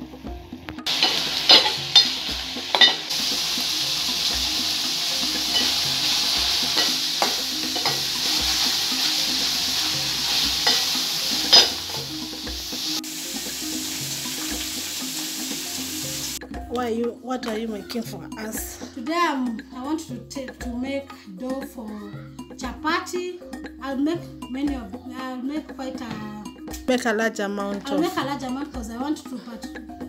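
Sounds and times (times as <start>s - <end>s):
meat sizzling in a pot: 0.8s - 16.4s
metal spoon scraping a pot: 0.9s - 3.1s, 5.4s - 12.1s.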